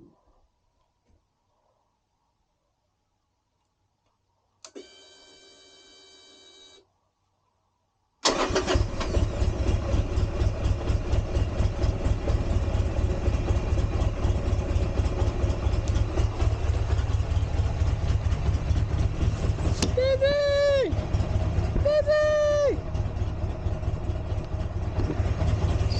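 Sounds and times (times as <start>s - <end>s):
motorcycle engine idling: 9.3s - 25.9s.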